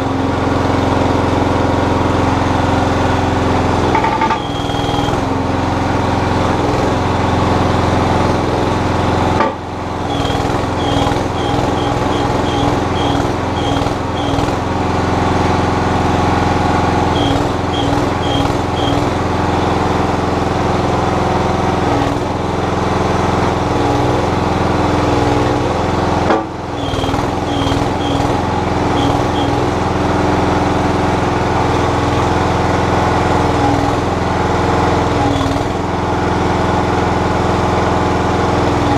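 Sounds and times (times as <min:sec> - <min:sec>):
backhoe engine running: 0:00.0 - 0:38.9
short high chirps: 0:04.1 - 0:05.2, 0:10.1 - 0:14.5, 0:17.2 - 0:19.7, 0:26.8 - 0:28.4, 0:29.0 - 0:29.6.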